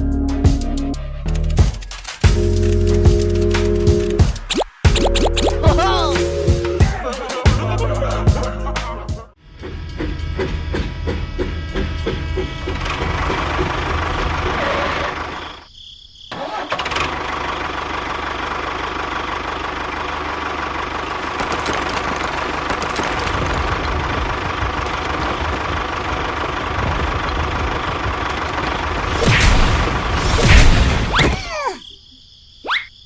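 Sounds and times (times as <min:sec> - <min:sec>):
miniature tractor motor running: 0:16.4 - 0:29.1.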